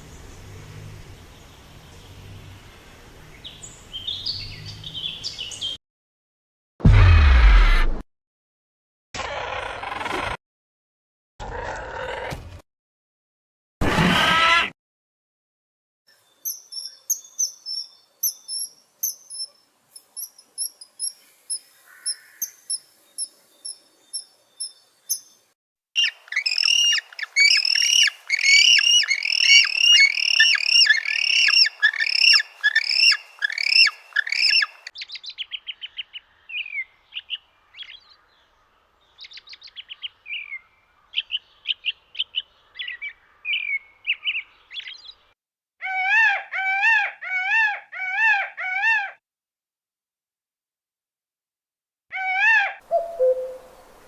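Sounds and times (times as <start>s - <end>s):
bird trills: 26.0s - 35.0s, 52.9s - 54.0s
birds chirping: 26.0s - 45.2s, 52.9s - 54.0s.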